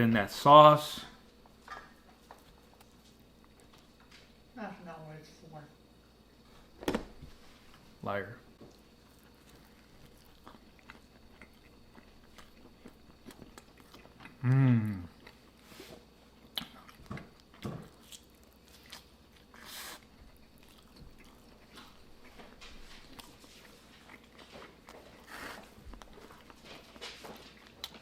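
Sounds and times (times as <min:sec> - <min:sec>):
pizza being bitten and chewed: 0:01.7 - 0:04.3, 0:08.6 - 0:28.0.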